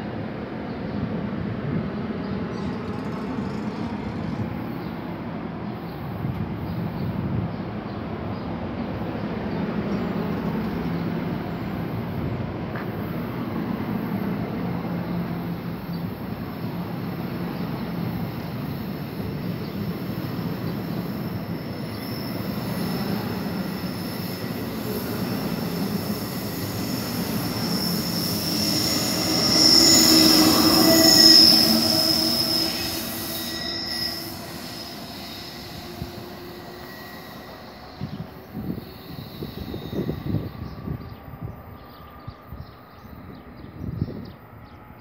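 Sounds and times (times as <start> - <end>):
train cars rumbling past: 0.0 - 45.0
locomotive high-pitched squeal: 14.3 - 44.2.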